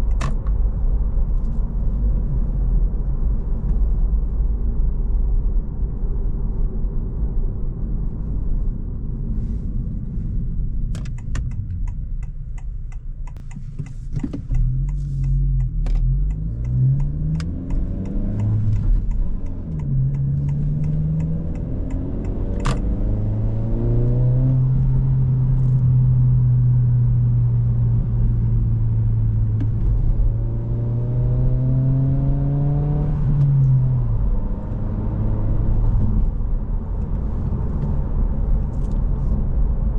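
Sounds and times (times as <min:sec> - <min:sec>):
car engine accelerating: 0:10.9 - 0:39.9.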